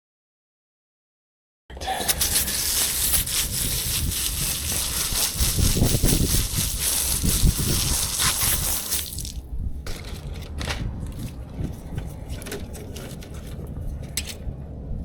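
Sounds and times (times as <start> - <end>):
hose water spraying on coil: 1.8 - 9.4.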